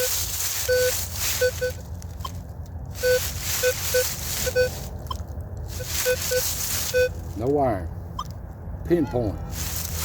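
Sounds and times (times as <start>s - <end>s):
metal detector beeps: 0.0s - 2.4s, 3.0s - 5.2s, 5.8s - 7.2s.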